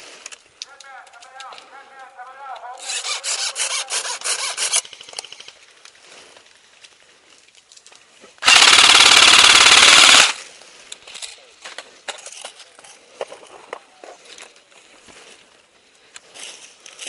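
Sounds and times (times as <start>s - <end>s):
airsoft rifle full-auto burst: 2.8s - 5.6s, 8.4s - 10.4s.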